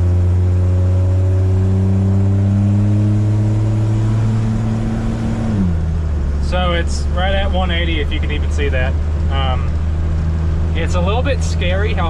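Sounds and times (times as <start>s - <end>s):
truck engine idling: 5.7s - 12.0s.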